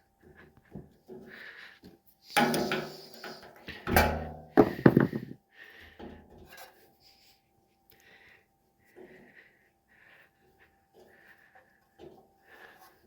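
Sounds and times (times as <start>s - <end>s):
tools and parts knocking and clicking: 2.4s - 5.4s.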